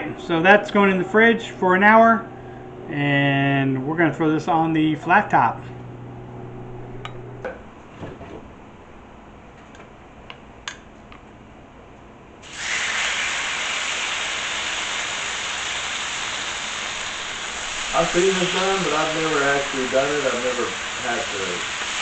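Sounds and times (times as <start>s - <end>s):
meat sizzling on a griddle: 12.4s - 22.0s.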